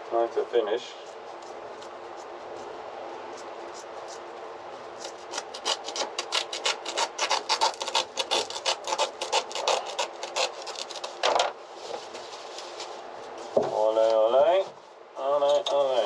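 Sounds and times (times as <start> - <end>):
rasping rubbing strokes: 0.9 - 13.6.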